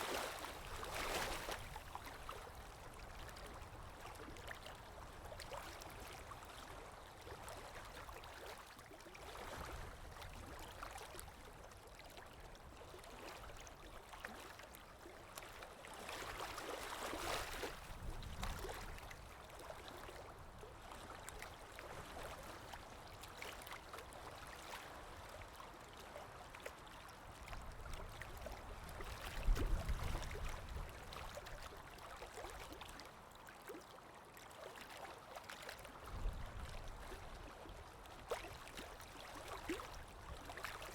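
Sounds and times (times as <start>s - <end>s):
water lapping: 0.0s - 40.9s
low rumble of wind: 17.7s - 19.5s, 27.4s - 31.9s, 35.9s - 40.8s.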